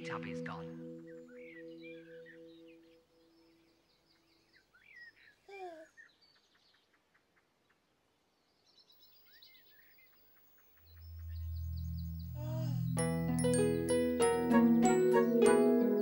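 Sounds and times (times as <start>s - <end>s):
low sustained musical tone: 0.0s - 3.9s, 11.0s - 16.0s
faint birdsong chirps and trills: 0.0s - 16.0s.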